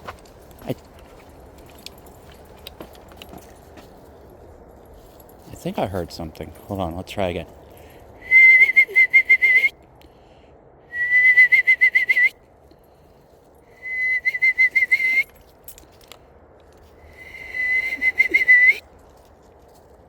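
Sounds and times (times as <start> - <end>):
person whistling quavering trills: 8.2 - 9.7, 10.9 - 12.4, 13.8 - 15.3, 17.1 - 18.8.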